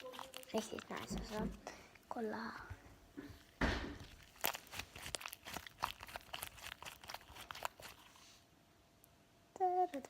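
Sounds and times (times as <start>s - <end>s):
slime squelching: 0.0s - 2.3s, 3.4s - 8.5s.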